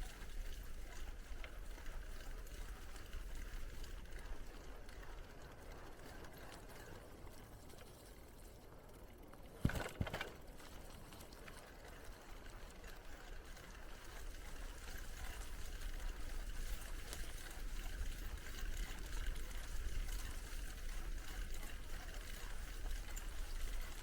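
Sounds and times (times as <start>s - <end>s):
bicycle tyres rolling: 0.0s - 24.0s
bike jolting and rattling: 9.6s - 11.2s.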